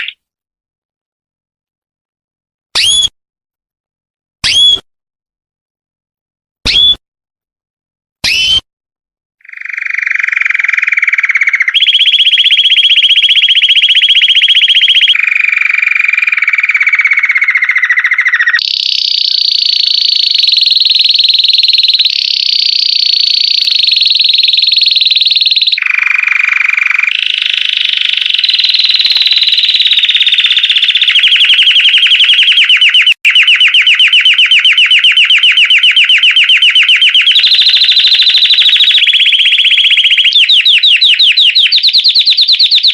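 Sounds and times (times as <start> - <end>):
canary singing rapid trills: 9.4 - 42.9.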